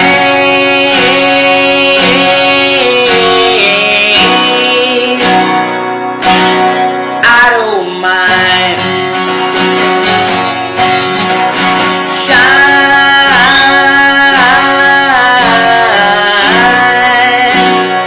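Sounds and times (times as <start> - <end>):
person singing long notes: 0.0 - 5.9, 12.1 - 18.0
strummed acoustic guitar: 0.0 - 18.0.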